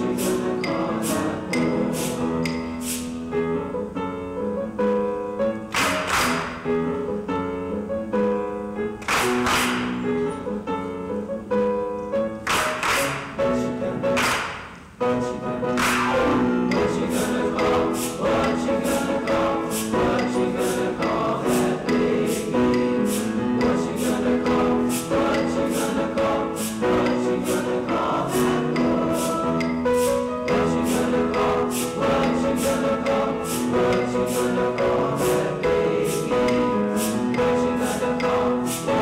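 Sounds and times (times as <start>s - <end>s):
choir singing in harmony: 0.0s - 3.9s, 12.7s - 39.0s.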